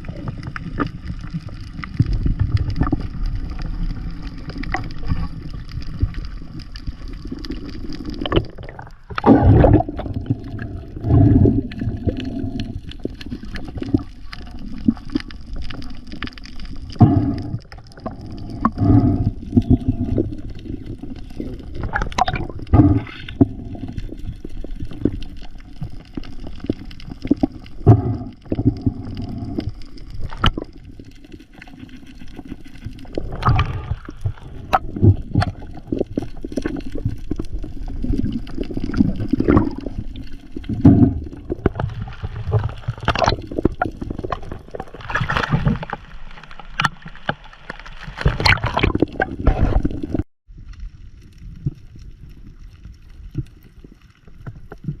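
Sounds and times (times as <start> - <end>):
water sloshing and gurgling: 0.0 - 55.0
water splashes: 0.0 - 55.0.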